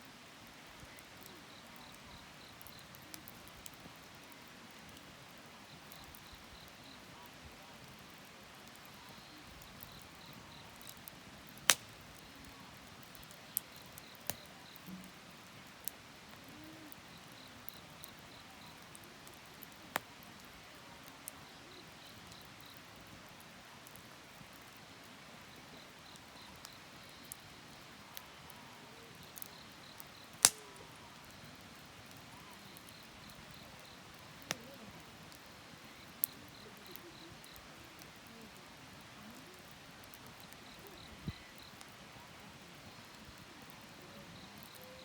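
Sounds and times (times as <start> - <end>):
wood fire burning: 0.0 - 45.0
fire popping and cracking: 7.8 - 22.8, 29.2 - 44.8.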